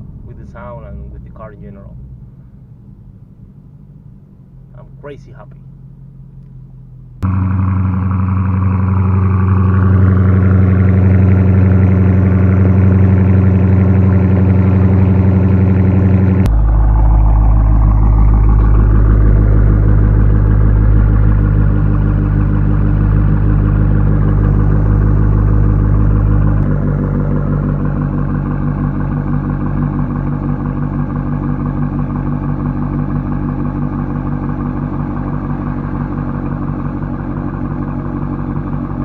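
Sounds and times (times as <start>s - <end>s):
loud car exhaust: 0.0s - 39.0s.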